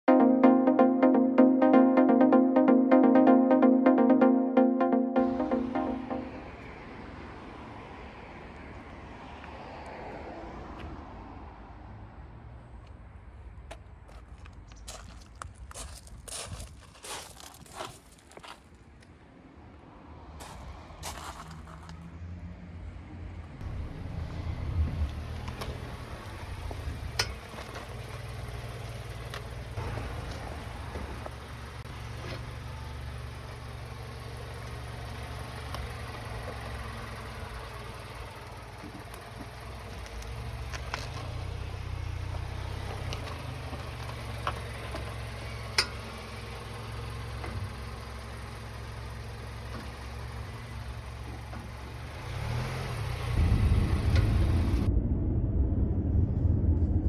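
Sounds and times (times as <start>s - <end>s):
car engine rumbling: 20.6s - 57.0s.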